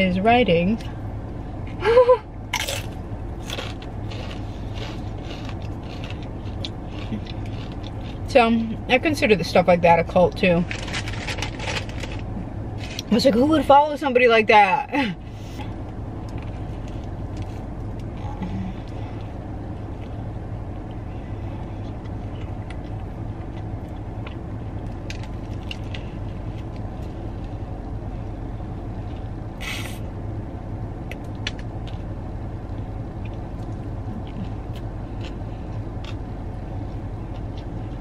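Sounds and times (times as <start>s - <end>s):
steady low hum: 0.0s - 38.0s
person chewing: 2.5s - 8.3s, 21.7s - 27.5s, 32.7s - 38.0s
short hiss: 29.6s - 30.0s.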